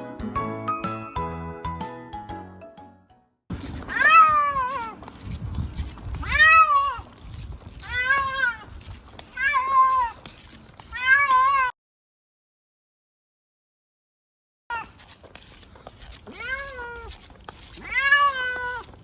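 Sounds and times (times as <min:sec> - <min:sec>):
cat meowing: 0:03.9 - 0:05.0, 0:06.2 - 0:07.1, 0:07.8 - 0:10.2, 0:10.9 - 0:11.7, 0:14.7 - 0:15.0, 0:16.3 - 0:17.2, 0:17.8 - 0:18.9.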